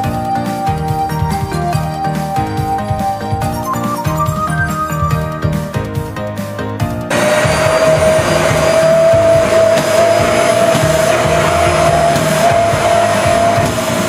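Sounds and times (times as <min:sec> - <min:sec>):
vacuum cleaner running: 0:07.1 - 0:14.0.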